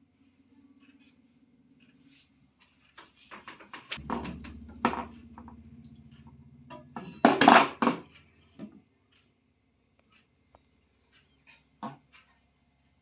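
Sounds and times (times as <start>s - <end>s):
metal clinking and knocking: 3.3s - 8.8s
loud metal clatter: 4.0s - 8.5s
low steady hum: 4.0s - 8.7s.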